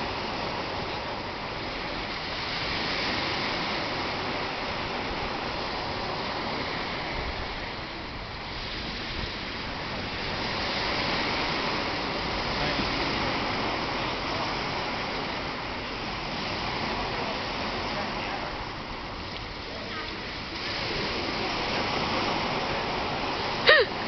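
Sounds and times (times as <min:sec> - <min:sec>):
surf washing on shore: 0:00.0 - 0:24.0.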